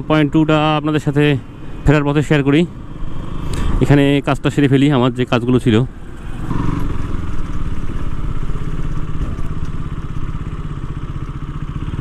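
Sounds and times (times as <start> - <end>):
motorcycle engine running: 5.9 - 12.0.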